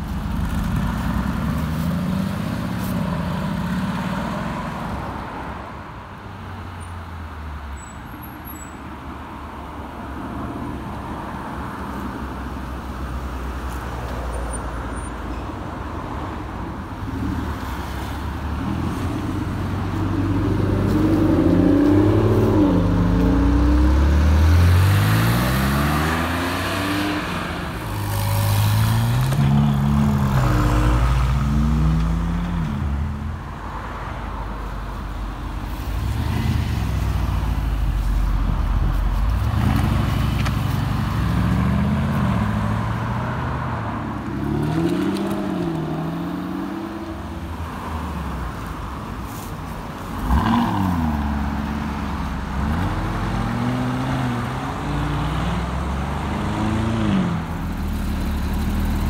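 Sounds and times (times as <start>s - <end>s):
sports car engines accelerating: 18.6s - 32.8s.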